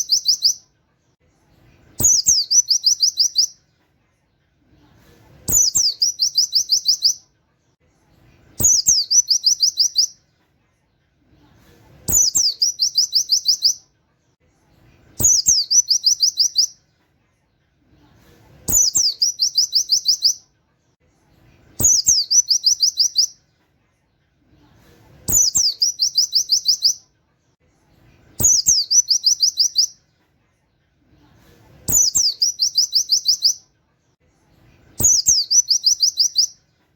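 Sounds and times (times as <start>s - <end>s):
bird song with rapid trill: 0.0s - 0.7s, 1.9s - 3.6s, 5.5s - 7.3s, 8.6s - 10.2s, 12.1s - 13.9s, 15.1s - 16.8s, 18.7s - 20.5s, 21.8s - 23.5s, 25.3s - 27.1s, 28.3s - 30.1s, 31.9s - 33.7s, 35.0s - 36.7s.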